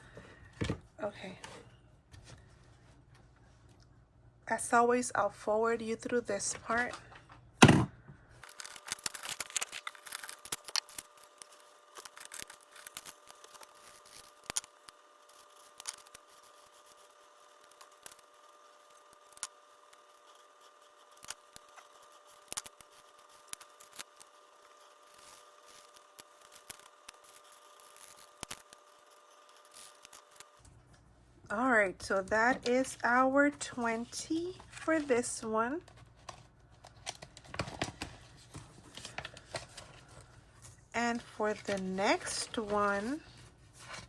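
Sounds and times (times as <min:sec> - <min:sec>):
faint high hum: 0:27.2 - 0:44.0.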